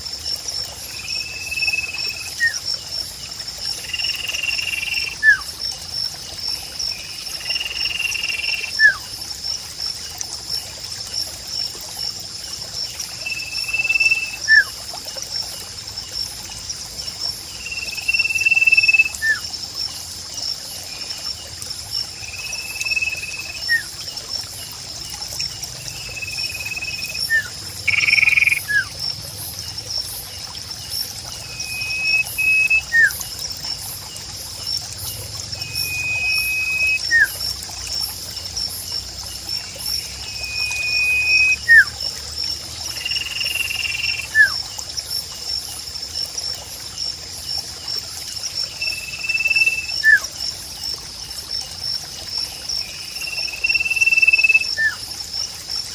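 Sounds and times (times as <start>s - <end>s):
insect trill: 0.0s - 55.9s
bird whistling: 31.6s - 33.1s, 35.7s - 37.4s, 40.4s - 41.9s.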